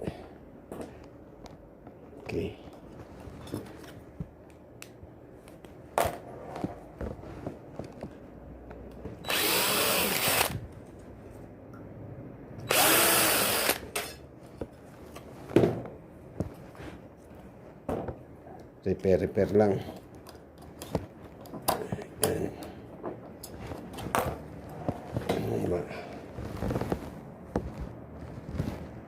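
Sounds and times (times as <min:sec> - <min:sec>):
electric drill running: 0:09.2 - 0:10.6, 0:12.6 - 0:14.0.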